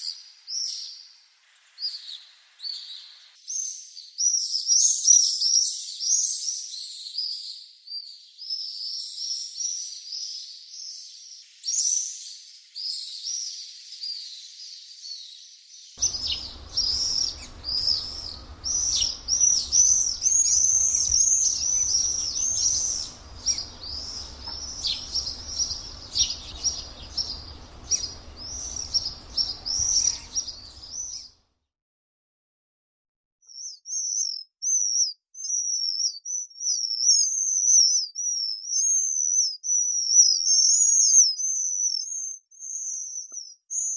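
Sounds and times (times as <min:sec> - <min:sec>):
swifts screaming: 0:16.0 - 0:31.3.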